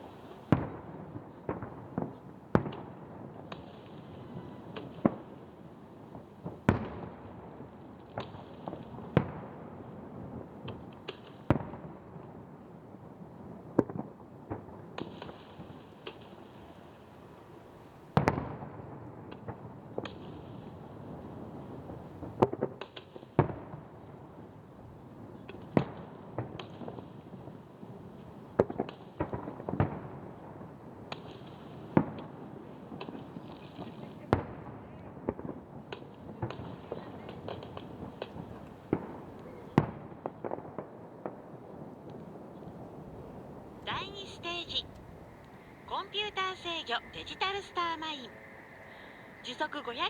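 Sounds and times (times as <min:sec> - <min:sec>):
light fireworks pops: 0:00.0 - 0:05.5, 0:08.0 - 0:09.6, 0:10.2 - 0:12.4, 0:13.7 - 0:23.9, 0:25.2 - 0:50.0
fireworks bangs: 0:36.4 - 0:50.0.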